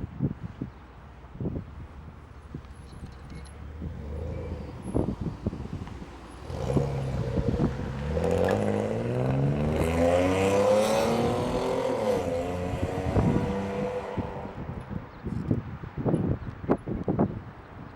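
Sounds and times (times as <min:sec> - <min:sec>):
car engine accelerating: 0:02.3 - 0:14.8.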